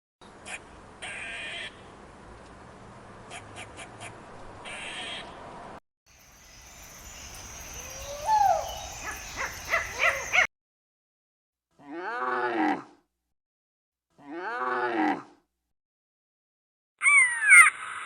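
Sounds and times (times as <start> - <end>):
farm animal calls: 7.8 - 10.5.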